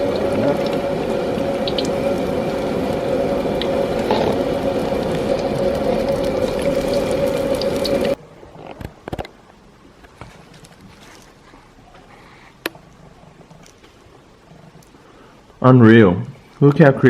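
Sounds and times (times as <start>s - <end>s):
fish sizzling in frying oil: 0.0s - 8.2s
steady hum: 0.0s - 15.7s.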